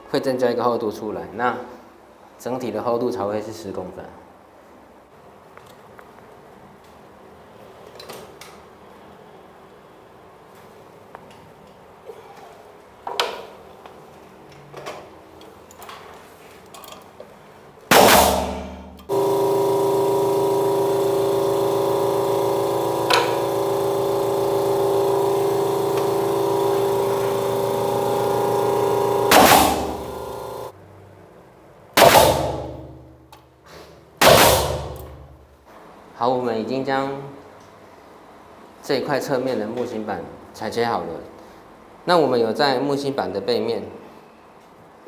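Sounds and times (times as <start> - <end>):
electric power saw cutting: 17.9 - 30.7, 32.0 - 32.8
loud sudden bangs: 17.9 - 30.7, 32.0 - 33.0.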